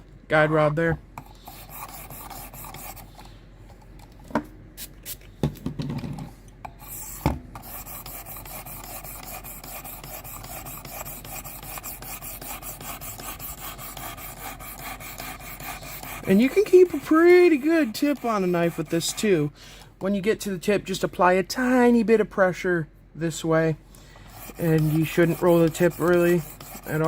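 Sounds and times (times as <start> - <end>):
knife rasping on sharpening stone: 1.4 - 3.1, 6.8 - 19.3, 24.4 - 27.0.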